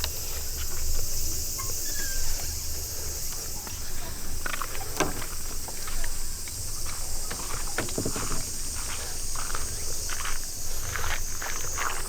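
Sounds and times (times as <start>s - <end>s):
insects droning: 0.0s - 12.0s
footsteps crunching on path: 2.4s - 12.0s.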